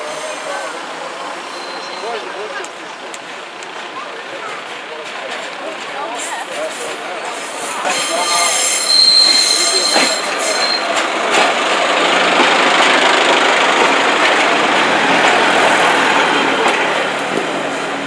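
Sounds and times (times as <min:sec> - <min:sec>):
high squeal from train wheels: 0:00.0 - 0:02.5, 0:06.2 - 0:11.0
train rolling past: 0:00.0 - 0:18.0.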